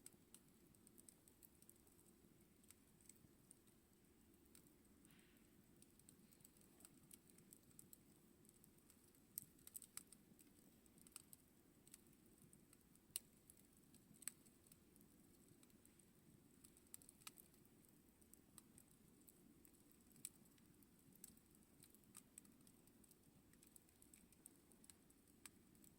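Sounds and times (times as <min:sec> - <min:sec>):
campfire crackling and popping: 0:05.8 - 0:16.0, 0:16.6 - 0:17.6, 0:18.3 - 0:25.9.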